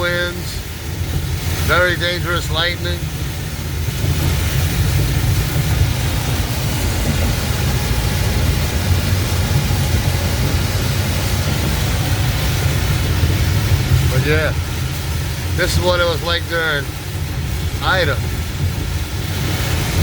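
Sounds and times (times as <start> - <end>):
low road rumble: 0.0 - 20.0
rain hissing: 0.0 - 20.0
wet tyre spray: 0.0 - 20.0.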